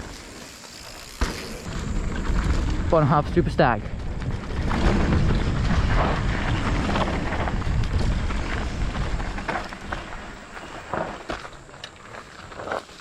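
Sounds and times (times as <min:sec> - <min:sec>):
bike tyre noise: 0:00.0 - 0:13.0
bike knocks and clatter: 0:00.7 - 0:02.9
wind buffeting microphone: 0:01.7 - 0:10.4.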